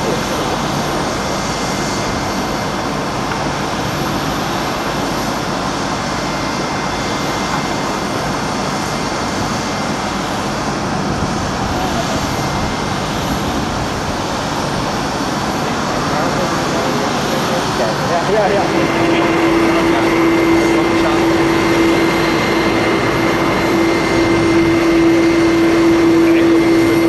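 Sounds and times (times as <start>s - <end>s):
jet engines running: 0.0s - 27.0s.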